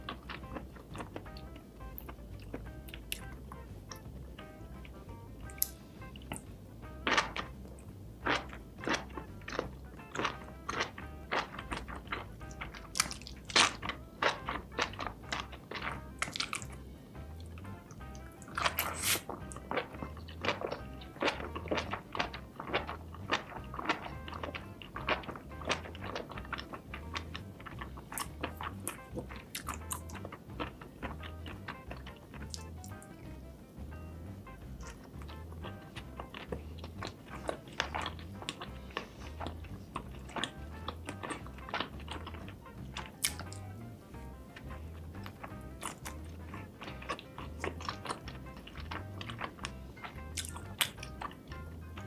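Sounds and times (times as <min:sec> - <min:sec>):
background music with low beat: 0:00.0 - 0:52.0
close-miked chewing: 0:00.0 - 0:52.0.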